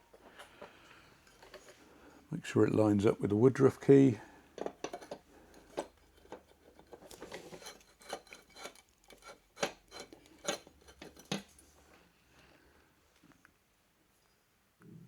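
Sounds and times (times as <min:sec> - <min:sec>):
small metal clicks and scraping: 0:00.1 - 0:01.9, 0:04.6 - 0:11.8.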